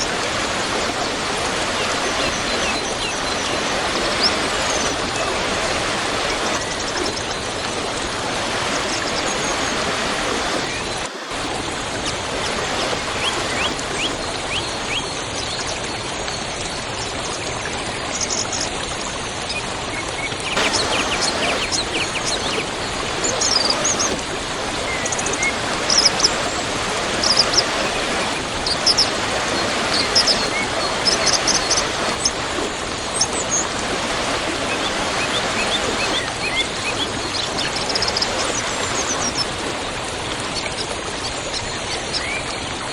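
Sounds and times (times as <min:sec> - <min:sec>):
small birds chirping: 0:00.0 - 0:11.5, 0:12.4 - 0:15.6, 0:20.5 - 0:39.9
waterfall rushing: 0:00.0 - 0:15.1, 0:20.6 - 0:40.7.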